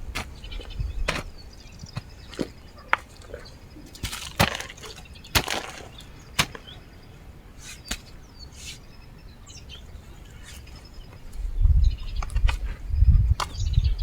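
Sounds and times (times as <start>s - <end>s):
digging tool chopping soil: 0.0s - 3.1s, 4.0s - 6.8s, 7.6s - 8.8s.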